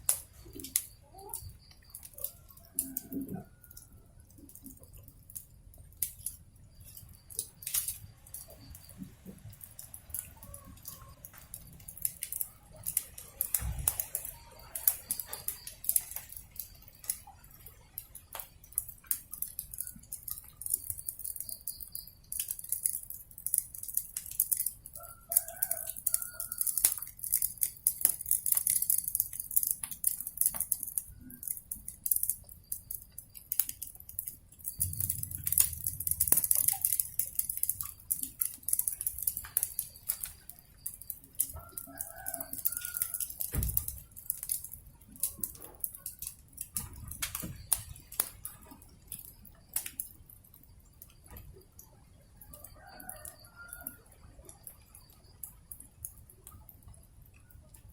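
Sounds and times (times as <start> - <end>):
wood fire crackling: 0.0 - 57.9
faint low rumble: 34.8 - 36.9.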